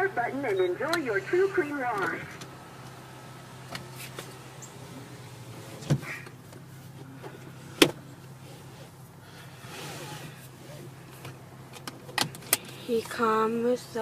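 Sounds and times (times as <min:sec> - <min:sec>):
low hum inside car: 0:00.0 - 0:14.0.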